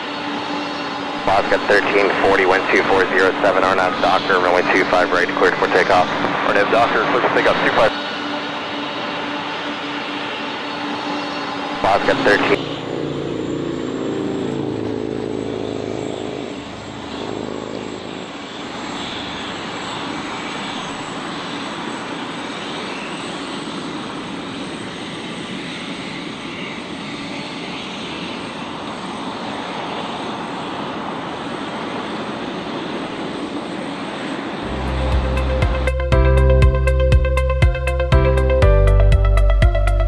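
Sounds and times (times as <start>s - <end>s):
thin high whine: 0.0s - 24.2s, 34.6s - 38.6s
jet engines roaring: 0.0s - 38.5s
music: 34.6s - 40.0s.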